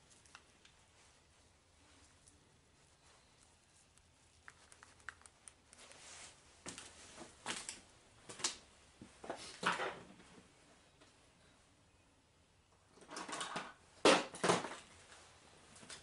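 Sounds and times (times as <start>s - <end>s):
rustling scraping strokes: 5.8s - 7.4s.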